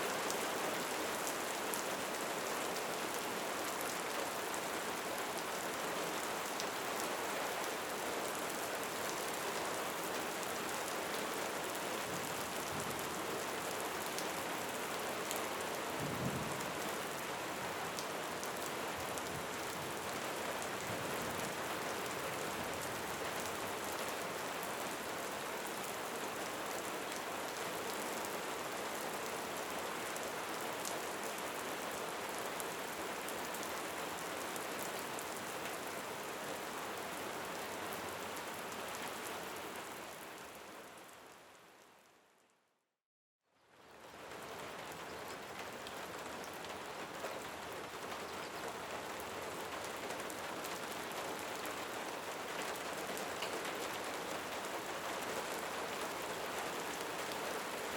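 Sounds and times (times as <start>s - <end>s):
steady rain: 0.0s - 42.5s, 43.6s - 57.9s.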